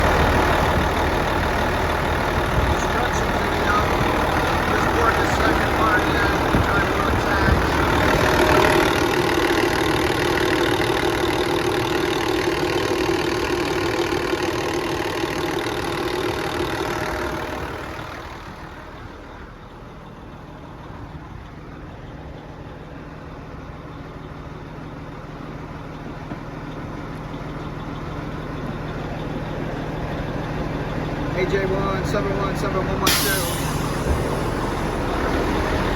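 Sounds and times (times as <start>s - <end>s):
steady low hum: 0.0s - 9.5s
engine running: 0.0s - 35.9s.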